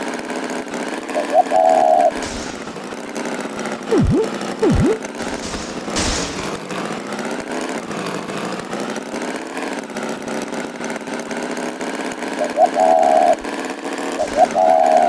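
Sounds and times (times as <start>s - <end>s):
pitch swoop: 3.9s - 5.1s
cartoon tractor engine running: 3.9s - 6.4s
short hiss: 4.6s - 6.7s.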